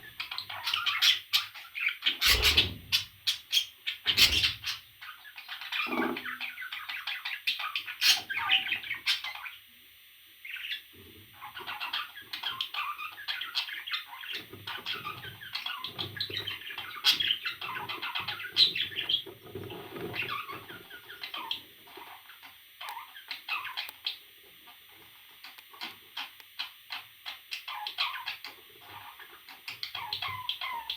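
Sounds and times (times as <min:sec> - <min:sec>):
parrot chirping and chattering: 0:00.2 - 0:09.6, 0:11.4 - 0:30.9.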